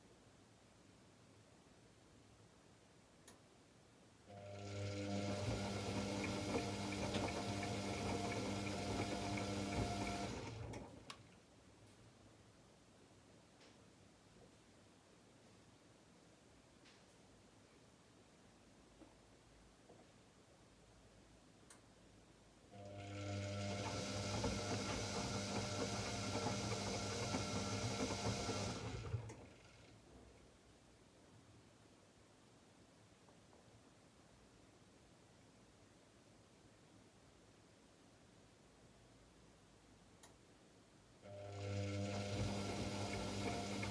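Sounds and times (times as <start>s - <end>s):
washing machine water rushing: 4.9s - 10.8s, 23.3s - 29.2s, 41.8s - 43.9s.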